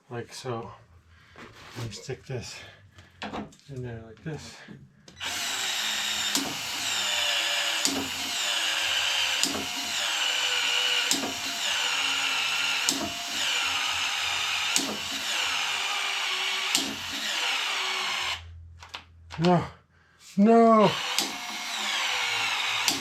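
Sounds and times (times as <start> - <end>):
power drill running: 5.2 - 18.4, 20.8 - 23.0.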